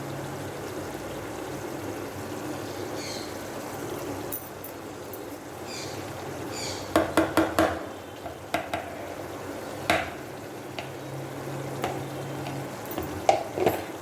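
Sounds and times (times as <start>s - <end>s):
oil sizzling: 0.0s - 14.0s
spatula knocking on pan: 6.9s - 9.1s, 9.8s - 11.0s, 11.8s - 14.0s
spatula scraping frying pan: 8.7s - 9.3s, 11.7s - 14.0s.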